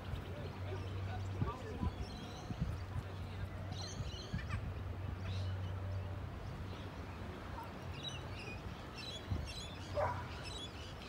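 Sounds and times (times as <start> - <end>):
birds chirping: 7.5 - 11.0.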